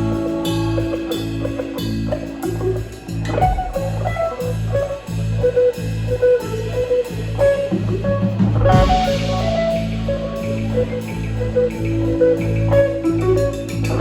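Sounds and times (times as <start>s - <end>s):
guitar melody: 0.0s - 14.0s
live band playing: 0.0s - 14.0s.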